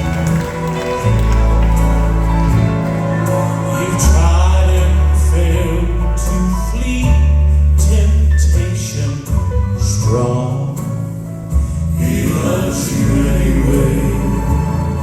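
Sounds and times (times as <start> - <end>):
band accompaniment: 0.0 - 15.0
men singing in harmony: 2.5 - 7.3, 12.0 - 15.0.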